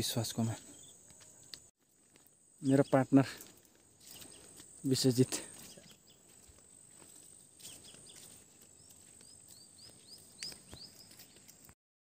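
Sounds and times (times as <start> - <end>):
small bird chirping: 0.4 - 1.7, 2.5 - 11.8
footfalls on concrete: 5.4 - 11.8.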